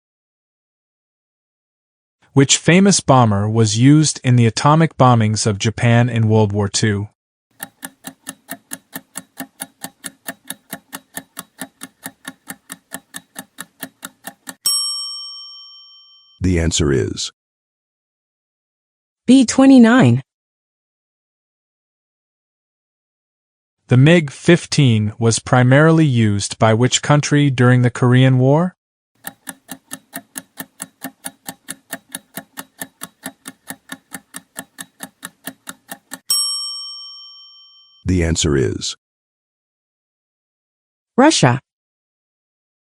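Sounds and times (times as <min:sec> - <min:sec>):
clock-like timer ticking: 0:07.6 - 0:14.6, 0:29.2 - 0:36.3.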